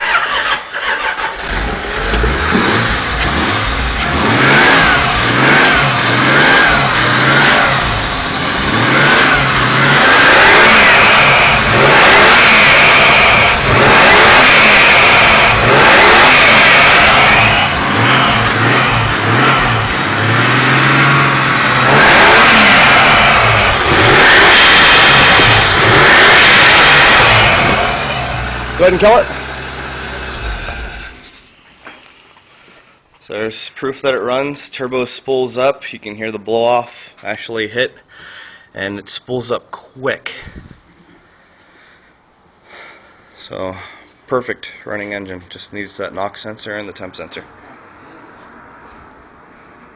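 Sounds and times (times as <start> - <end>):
car engine revving: 0.0 - 31.6
blow-off valve venting: 1.2 - 31.3.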